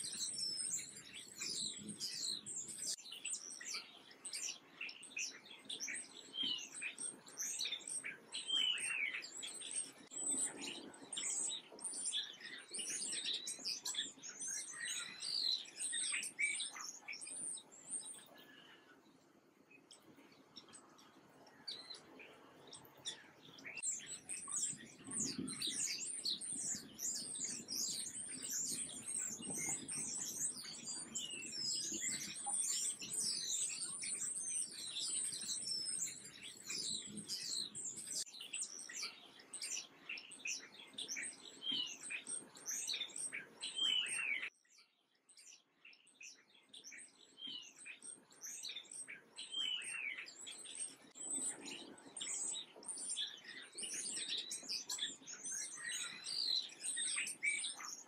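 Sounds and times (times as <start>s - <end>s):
chorus of birds chirping: 0.0s - 58.0s.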